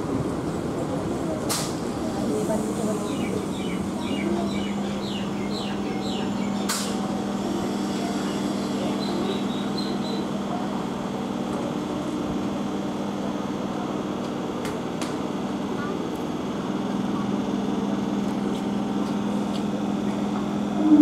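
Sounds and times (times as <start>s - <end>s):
electric train passing: 20.5s - 21.0s.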